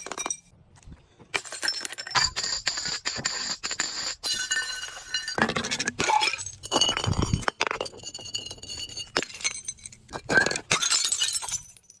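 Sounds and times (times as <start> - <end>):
glass breaking and crunching: 9.0 - 12.0.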